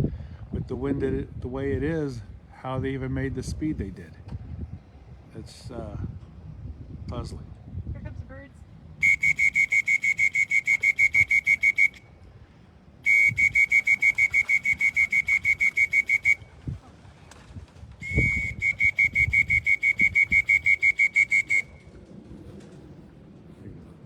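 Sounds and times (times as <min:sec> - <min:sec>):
whistle short blasts: 0:09.0 - 0:12.1, 0:13.0 - 0:16.5, 0:18.0 - 0:21.8.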